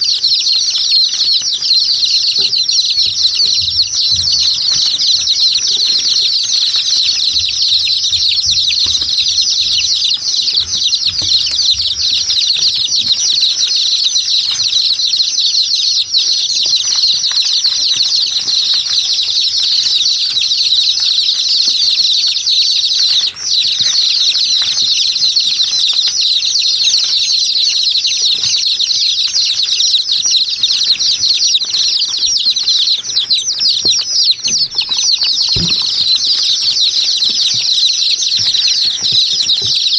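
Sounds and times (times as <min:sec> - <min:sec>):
chorus of small birds chirping: 0:00.0 - 0:39.9.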